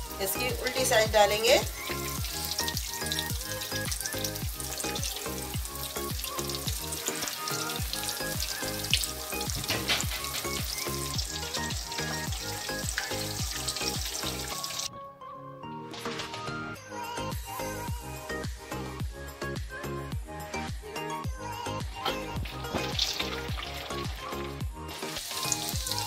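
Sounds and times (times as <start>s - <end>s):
bread sizzling in hot oil: 0.0s - 14.9s, 22.3s - 26.0s
background music with steady beat: 0.0s - 26.0s.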